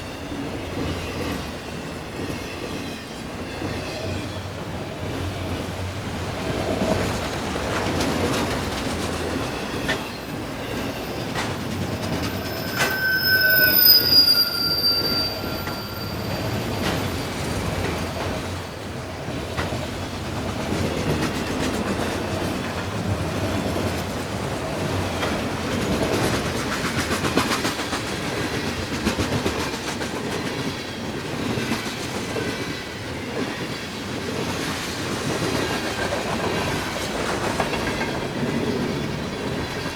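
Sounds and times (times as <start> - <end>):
train wheels rumbling on rails: 0.0 - 39.9
high wheel squeal: 9.5 - 18.8.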